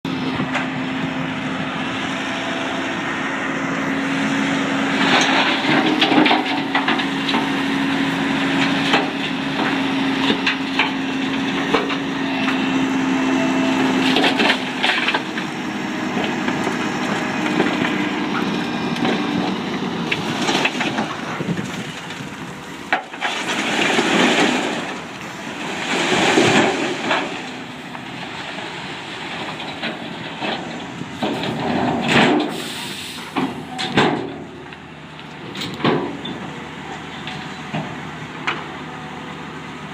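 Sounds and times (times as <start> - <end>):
truck engine humming: 0.0 - 39.9
dirt and rock sliding out: 23.1 - 33.9.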